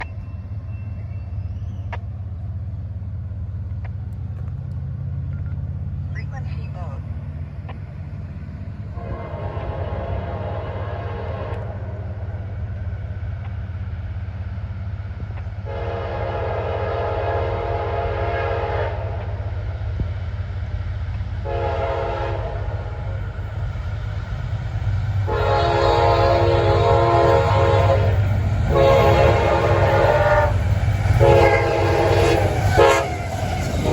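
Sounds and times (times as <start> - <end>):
train rumbling: 0.0 - 33.9
train air horn blasts: 8.9 - 11.8, 15.6 - 19.2, 21.4 - 23.0, 25.2 - 33.9.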